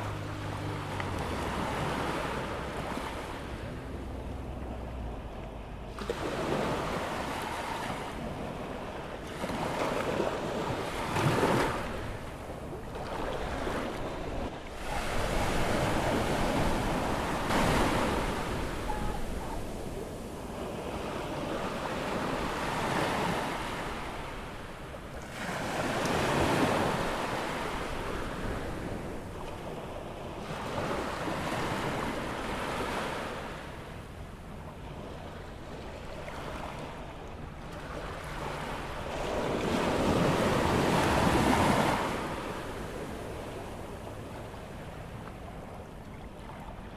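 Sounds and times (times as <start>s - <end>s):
surf breaking on beach: 10.9s - 24.8s.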